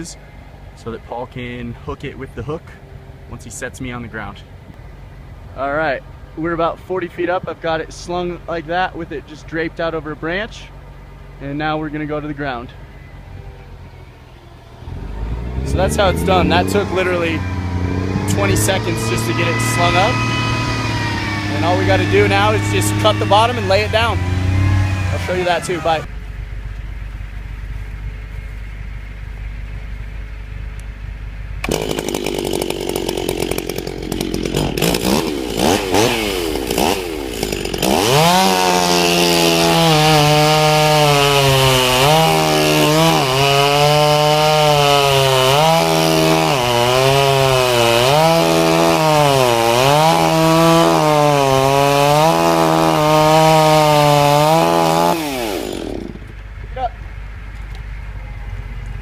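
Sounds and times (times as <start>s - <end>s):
chainsaw cutting wood: 15.4s - 26.1s, 31.6s - 56.4s.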